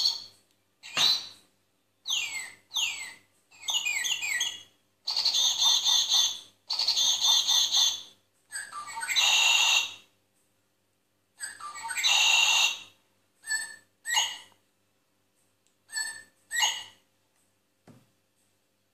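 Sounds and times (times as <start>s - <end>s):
shrill bird-like calls: 0.0s - 1.4s, 2.0s - 10.1s, 11.4s - 14.6s, 15.9s - 17.0s.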